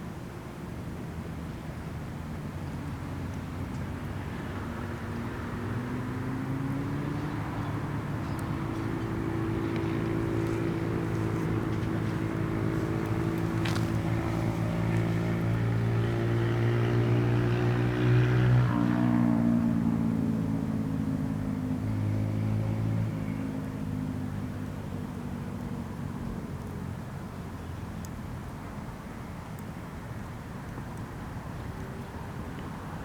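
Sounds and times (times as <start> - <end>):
engine running: 8.4 - 18.0.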